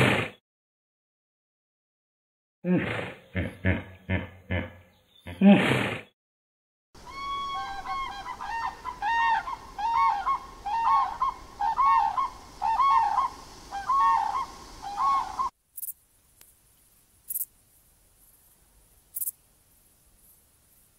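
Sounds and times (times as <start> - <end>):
cranes calling: 7.0 - 15.5.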